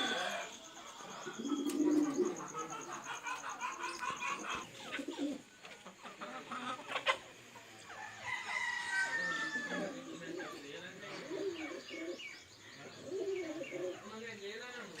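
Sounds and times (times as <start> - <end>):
birds chirping and calling: 0.0 - 15.0
long falling rooster-like call: 7.9 - 10.1.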